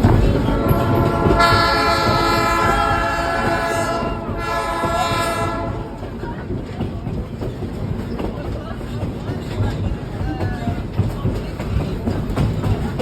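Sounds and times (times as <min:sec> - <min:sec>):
low rumble of train running: 0:00.0 - 0:13.0
train horn blasts: 0:00.4 - 0:06.2.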